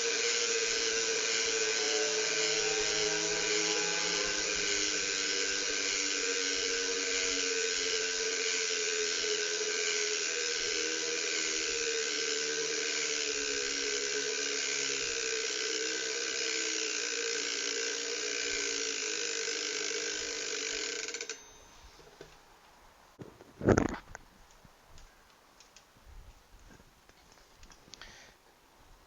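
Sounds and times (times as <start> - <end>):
bicycle hub ratchet buzzing: 0.0 - 21.9.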